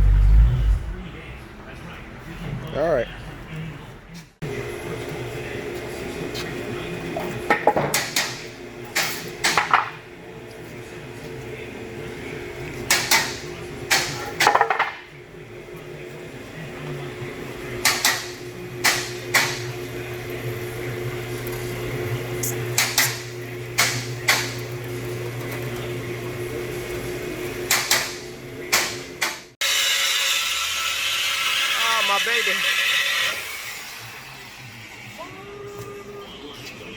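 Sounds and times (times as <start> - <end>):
low machine hum: 15.1 - 29.2.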